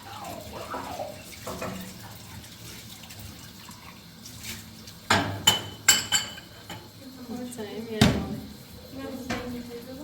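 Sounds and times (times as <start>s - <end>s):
running water hiss: 0.0s - 10.0s
metal kitchenware clinking: 5.1s - 6.9s.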